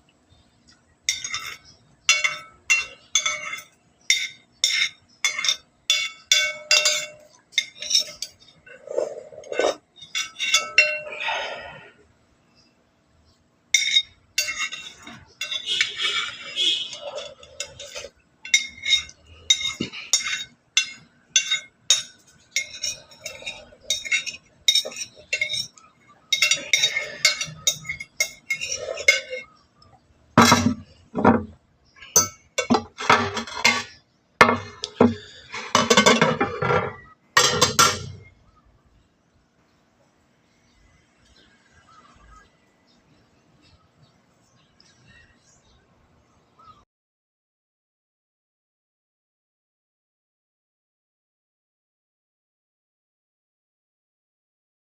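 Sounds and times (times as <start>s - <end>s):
cutlery clinking against dishes: 1.1s - 11.2s, 13.8s - 38.3s.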